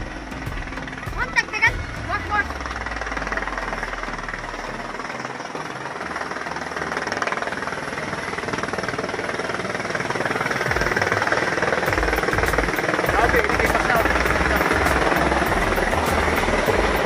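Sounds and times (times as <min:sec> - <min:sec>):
helicopter engine hiss: 0:00.0 - 0:17.0
helicopter rotor beating: 0:00.0 - 0:17.0
low rumble: 0:11.9 - 0:17.0.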